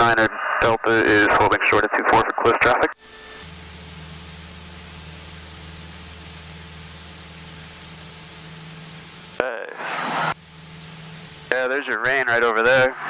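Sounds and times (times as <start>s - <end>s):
aircraft engine hum: 3.0s - 9.4s, 10.2s - 11.5s
high-pitched electrical whine: 3.0s - 12.0s.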